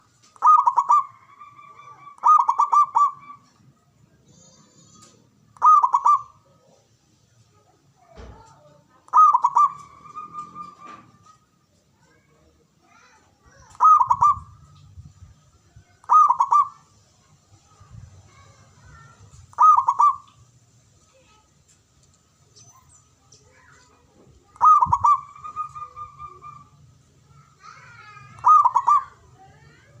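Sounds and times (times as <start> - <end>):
dove cooing: 0.4 - 3.5, 5.0 - 6.8, 9.1 - 11.2, 13.7 - 14.7, 16.0 - 16.8, 19.5 - 20.4, 24.5 - 26.8, 28.0 - 29.2.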